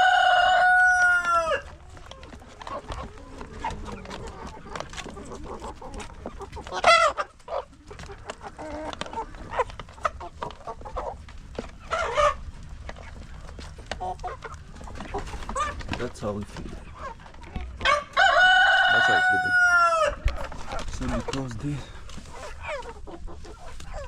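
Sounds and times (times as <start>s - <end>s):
loud chicken calls: 0.0s - 11.2s, 16.9s - 24.0s
chickens clucking: 0.0s - 24.0s.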